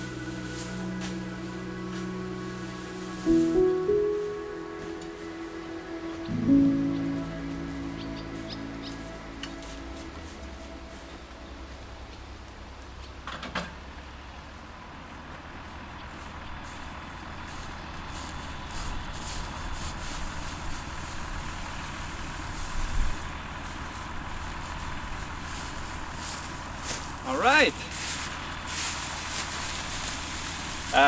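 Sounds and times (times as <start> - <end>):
faint steady whine: 0.0 - 13.3
engine rumbling: 0.0 - 31.0.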